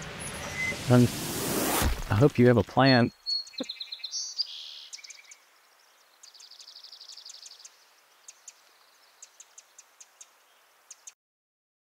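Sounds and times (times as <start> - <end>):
small birds chirping: 2.1 - 11.2
bird trill: 2.8 - 5.4.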